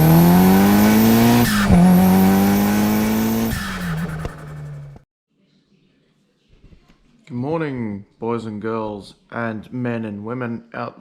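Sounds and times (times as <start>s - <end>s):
car engine accelerating: 0.0s - 5.0s.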